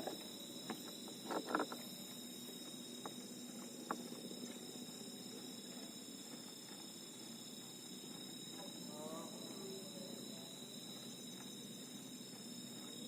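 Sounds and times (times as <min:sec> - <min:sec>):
night insects chorus: 0:00.0 - 0:13.0.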